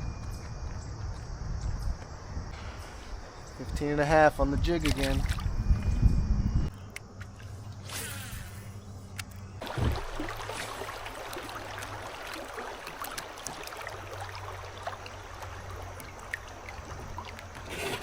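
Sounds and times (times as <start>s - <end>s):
water trickling and splashing: 2.8s - 5.9s, 9.6s - 18.0s.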